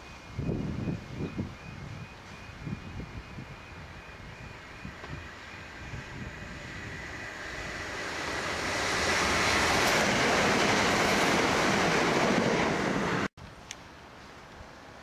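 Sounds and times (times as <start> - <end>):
rushing air: 3.8 - 13.3.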